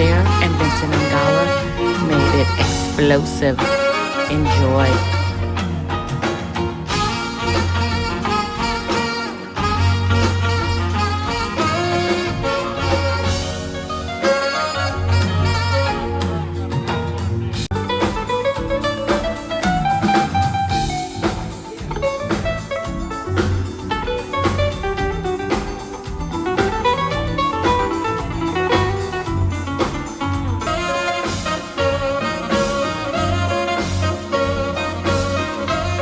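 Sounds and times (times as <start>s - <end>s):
drum kit: 0.0s - 36.0s
guitar: 0.0s - 36.0s
jazz band playing: 0.0s - 36.0s
lead melody with bending notes: 0.0s - 36.0s.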